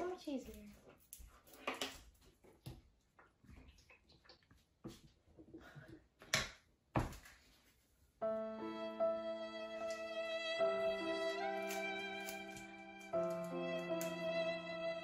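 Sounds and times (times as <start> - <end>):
scissors snipping: 11.5 - 14.2.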